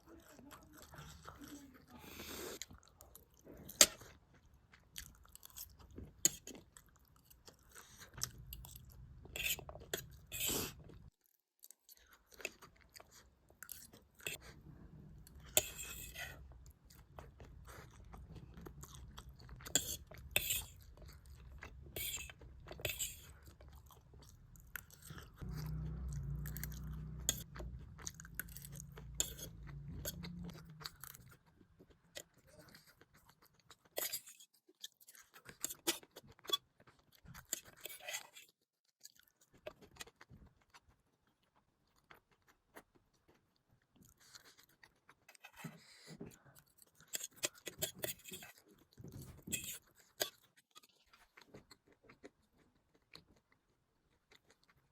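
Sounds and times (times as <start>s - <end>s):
chewing food: 0.0s - 54.9s
food crunching: 0.0s - 54.9s
low hum: 25.4s - 30.9s.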